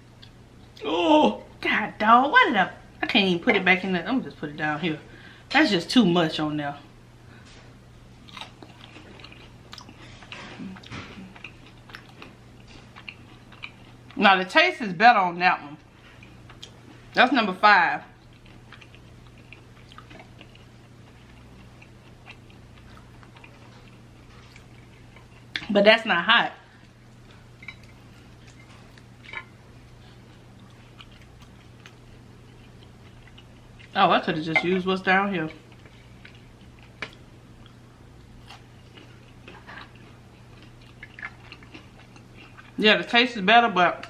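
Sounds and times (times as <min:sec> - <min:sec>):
low steady hum: 0:00.0 - 0:44.0
chewing with mouth clicks: 0:08.2 - 0:14.2, 0:15.8 - 0:17.2, 0:18.1 - 0:25.7, 0:26.7 - 0:34.0, 0:35.5 - 0:42.8.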